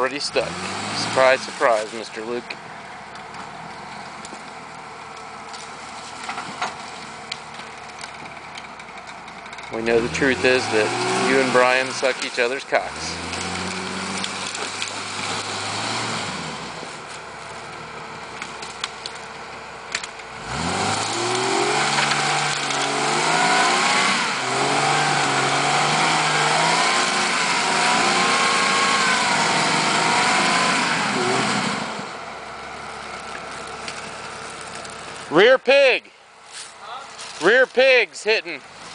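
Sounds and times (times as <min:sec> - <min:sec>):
engine revving under load: 0:00.0 - 0:04.6, 0:09.6 - 0:19.2, 0:19.9 - 0:35.4.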